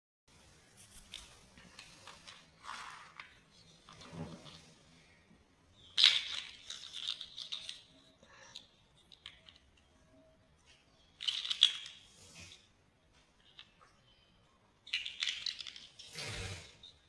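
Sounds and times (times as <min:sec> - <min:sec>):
plastic pieces rustling and clicking: 0:05.9 - 0:09.9, 0:11.2 - 0:12.1, 0:14.8 - 0:16.9.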